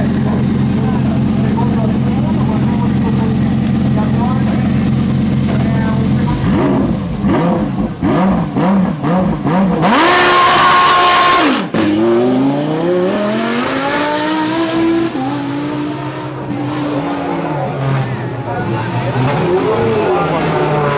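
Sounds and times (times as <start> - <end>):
race car engine revving: 0.0 - 20.9.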